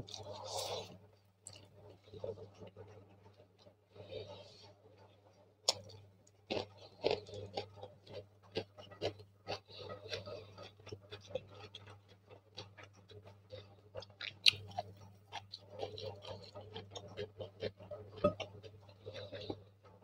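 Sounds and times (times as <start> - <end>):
low steady hum: 0.0 - 20.0
chewing and mouth sounds: 5.0 - 20.0.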